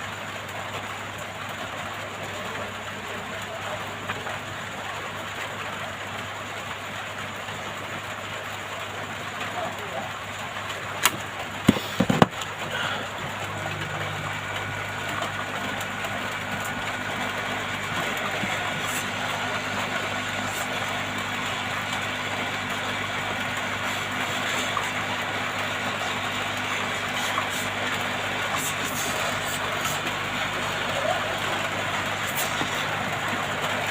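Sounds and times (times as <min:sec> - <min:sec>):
hot air blower humming: 0:11.0 - 0:33.9.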